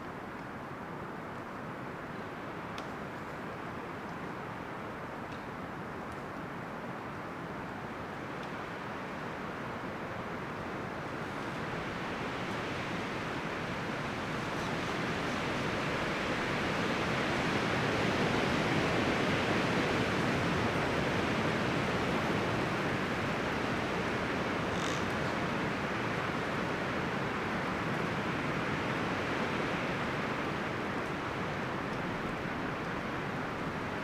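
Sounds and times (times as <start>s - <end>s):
wind rustling tree leaves: 7.1s - 34.0s.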